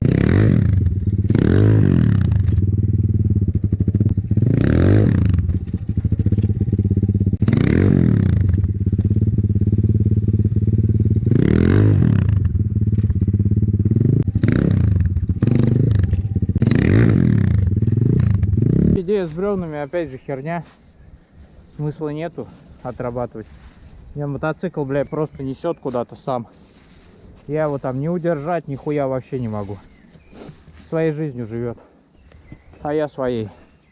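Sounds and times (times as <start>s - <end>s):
dirt bike engine revving: 0.0s - 19.2s.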